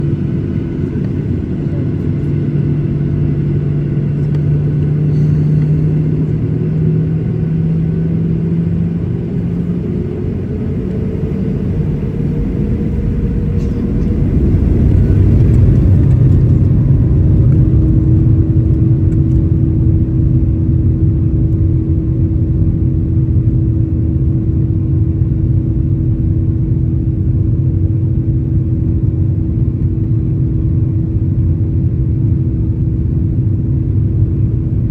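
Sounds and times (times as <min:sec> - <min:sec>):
jet engine whine rising: 0:00.0 - 0:20.8
jet engines humming in cabin: 0:00.0 - 0:34.9.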